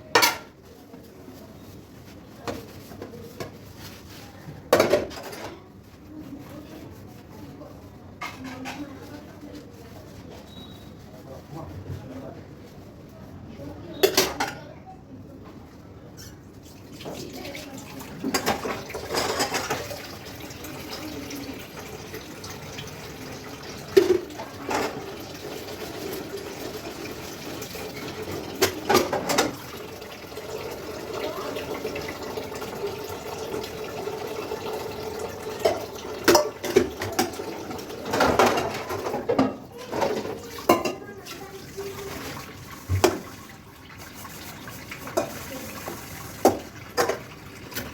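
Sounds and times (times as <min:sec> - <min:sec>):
dishes clinking against sink: 0:00.0 - 0:00.6, 0:04.7 - 0:05.6, 0:08.2 - 0:09.0, 0:13.8 - 0:14.8, 0:17.0 - 0:47.9
tap running into a sink: 0:42.8 - 0:43.5, 0:44.9 - 0:47.9.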